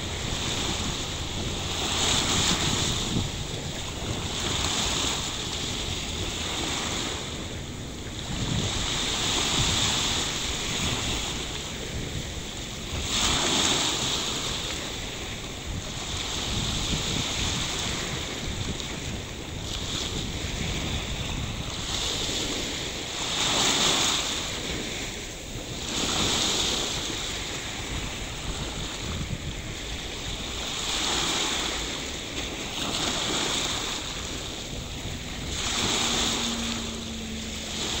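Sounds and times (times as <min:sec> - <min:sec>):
sea surf washing in: 0:00.0 - 0:38.0
wind buffeting microphone: 0:00.0 - 0:38.0
faint steady hum: 0:33.2 - 0:38.0.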